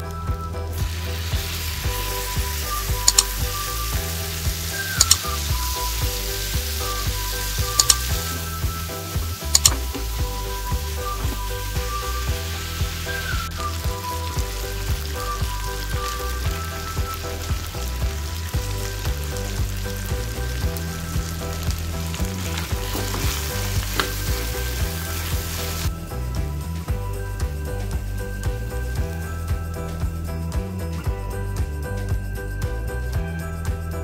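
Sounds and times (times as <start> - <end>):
background music with beat: 0.0 - 34.0
chicken sizzling in oil: 0.7 - 26.0.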